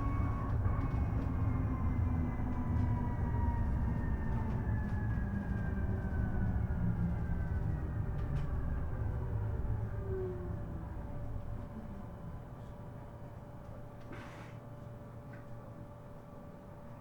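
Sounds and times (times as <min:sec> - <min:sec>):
electric bus motor whine: 0:00.0 - 0:13.6.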